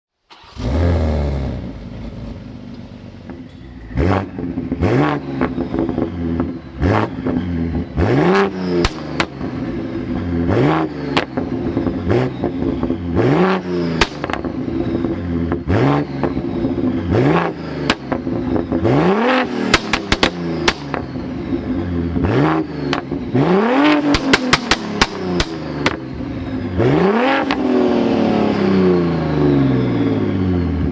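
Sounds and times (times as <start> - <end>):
car engine revving: 0.3 - 30.9
exhaust pops and crackles: 14.0 - 14.5, 19.7 - 21.1, 23.8 - 26.0.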